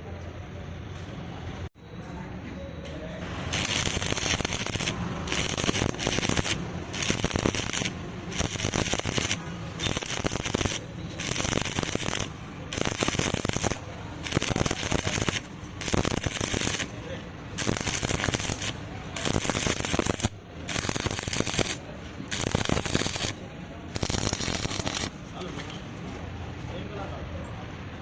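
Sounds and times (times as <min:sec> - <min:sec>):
welding arc crackling and sizzling: 0:03.2 - 0:25.2.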